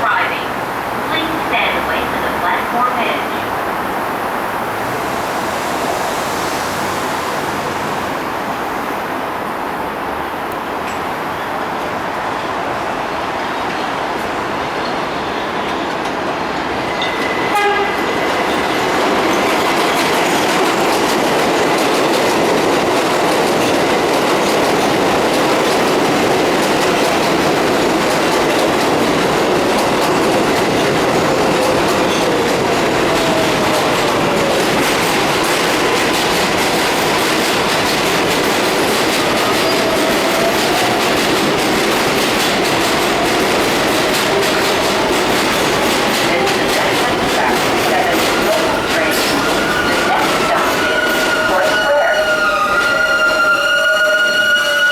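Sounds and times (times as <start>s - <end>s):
subway train running: 0.0s - 54.9s
wheels clattering over rail joints: 18.4s - 51.8s.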